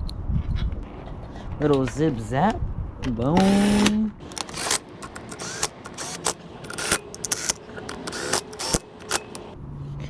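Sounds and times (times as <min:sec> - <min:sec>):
metal tools clicking and knocking: 0:04.2 - 0:09.6.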